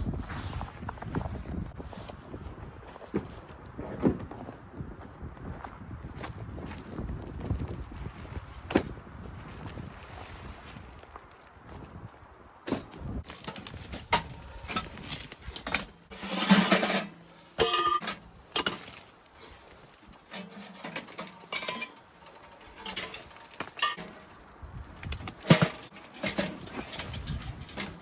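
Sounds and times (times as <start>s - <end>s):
camping gear clinking and knocking: 12.6s - 28.0s.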